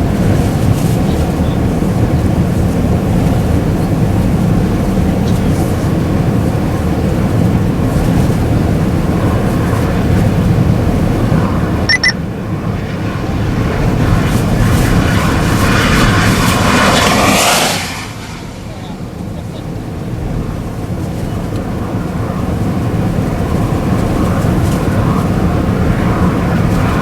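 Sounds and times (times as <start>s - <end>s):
double electronic beep: 11.9s - 12.2s.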